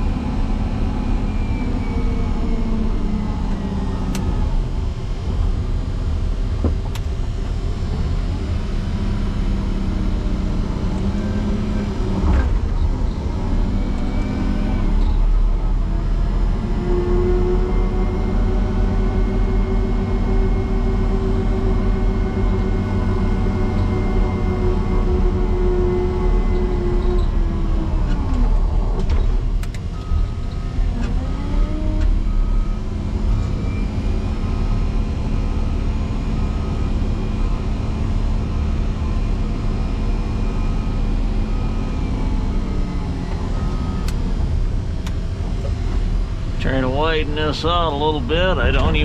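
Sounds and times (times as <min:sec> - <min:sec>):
diesel engine working hard: 0:00.0 - 0:49.0.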